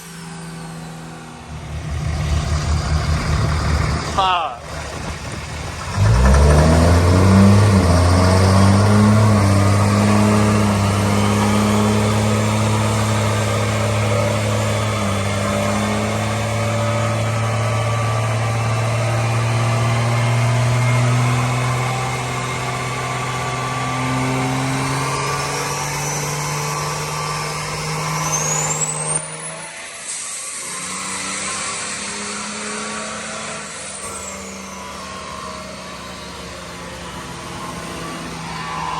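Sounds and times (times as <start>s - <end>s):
truck engine revving: 0.0s - 38.9s
thin high whine: 25.3s - 38.9s.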